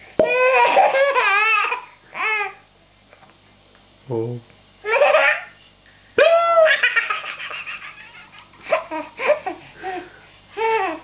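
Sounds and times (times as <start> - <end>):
baby laughing: 0.4 - 2.4, 4.8 - 5.5, 6.6 - 10.0.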